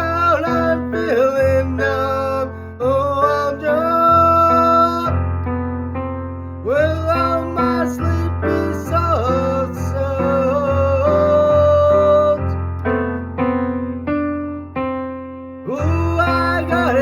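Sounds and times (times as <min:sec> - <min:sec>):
person singing slow song: 0:00.0 - 0:05.3, 0:06.6 - 0:13.0, 0:15.6 - 0:17.0
keyboard chords: 0:00.0 - 0:17.0.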